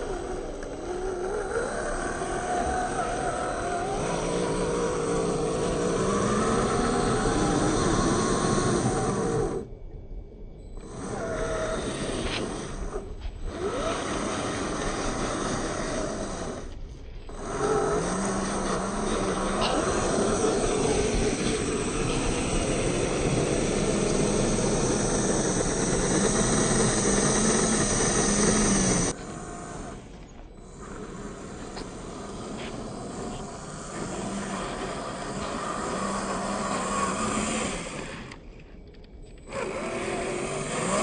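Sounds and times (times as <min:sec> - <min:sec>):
electric motor whine: 0:00.0 - 0:41.0
rough ground noise: 0:09.7 - 0:41.0.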